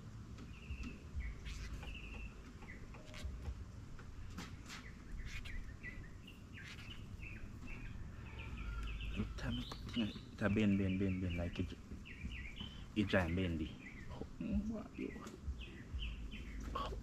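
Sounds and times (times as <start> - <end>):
small birds chirping: 0.0 - 17.0
low rumble: 15.4 - 17.0.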